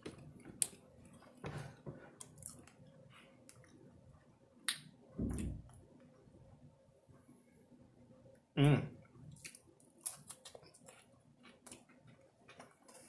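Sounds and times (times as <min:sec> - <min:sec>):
low thump: 0:05.2 - 0:05.8.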